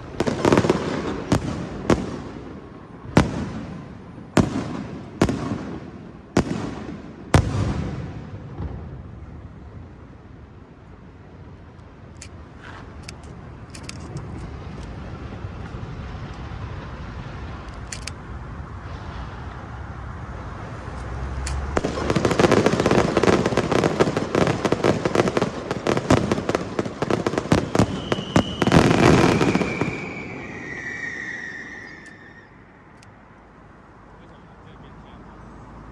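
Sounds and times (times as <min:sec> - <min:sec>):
firecrackers crackling: 0:00.0 - 0:10.1, 0:12.0 - 0:33.0
high tone sliding downward: 0:29.4 - 0:33.0.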